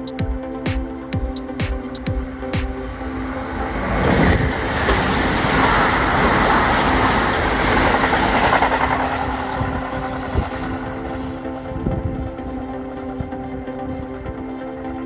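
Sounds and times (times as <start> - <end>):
train wheels rushing on rails: 2.1 - 11.6.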